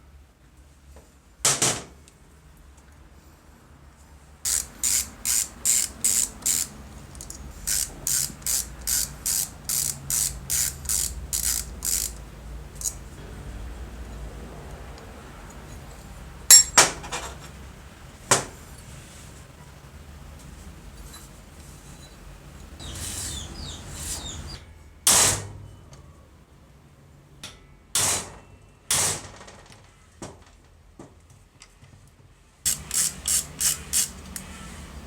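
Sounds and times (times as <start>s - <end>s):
hand tool strokes on metal: 4.5s - 6.8s, 7.6s - 12.2s.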